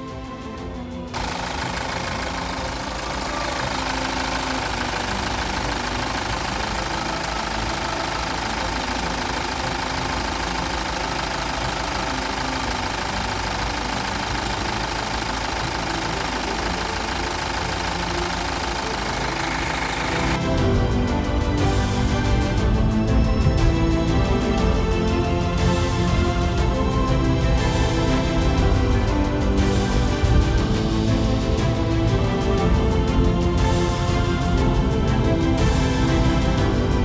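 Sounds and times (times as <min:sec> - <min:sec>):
diesel engine running: 0:01.2 - 0:20.7.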